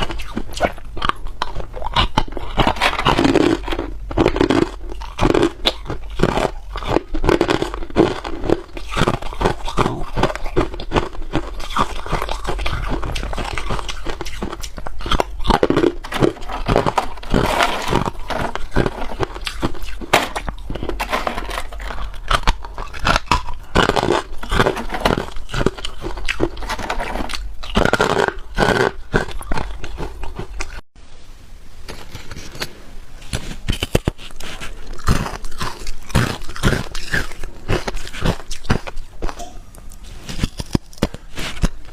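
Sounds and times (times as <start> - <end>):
person chewing ice: 0.0 - 30.8, 32.1 - 41.9.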